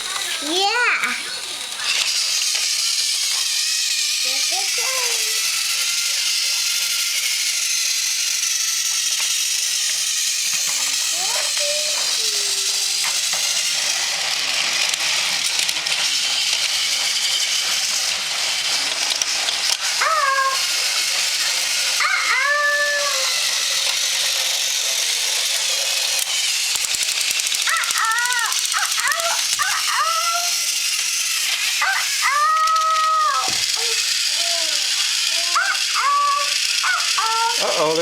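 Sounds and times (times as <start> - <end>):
toy train motor whirring: 0.0 - 38.0
high whining calls: 19.7 - 24.2, 27.6 - 38.0.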